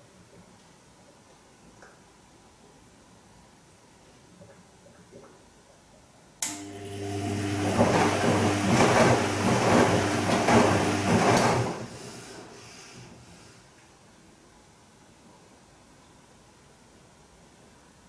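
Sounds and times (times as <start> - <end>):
washing machine motor humming: 6.4 - 13.2
water and laundry sloshing: 6.7 - 13.1.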